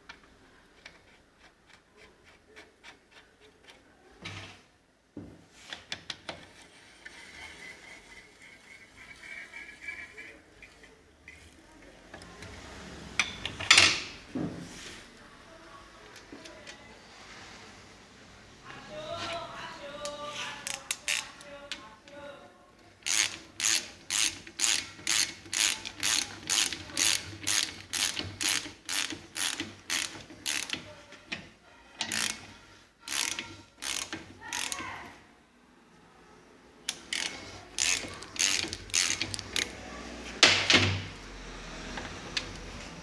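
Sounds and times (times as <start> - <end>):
ratchet wrench clicking: 20.6 - 21.5, 23.0 - 30.8, 32.1 - 32.5, 33.1 - 34.8, 37.1 - 39.8.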